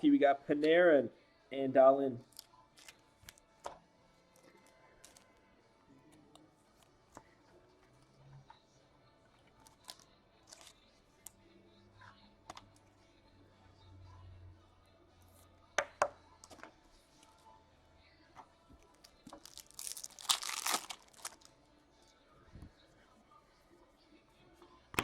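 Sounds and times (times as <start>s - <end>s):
wrapper tearing and crinkling: 19.3s - 21.5s.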